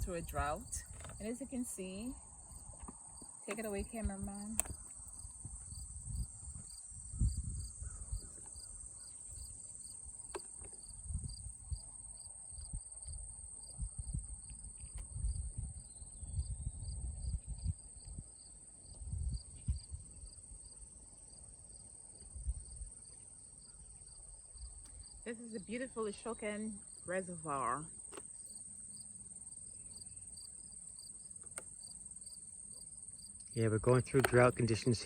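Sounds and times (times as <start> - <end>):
wind rumbling on microphone: 0.0 - 2.9, 3.6 - 9.5, 10.9 - 20.6, 22.3 - 23.0
insects buzzing and chirping: 0.0 - 35.0.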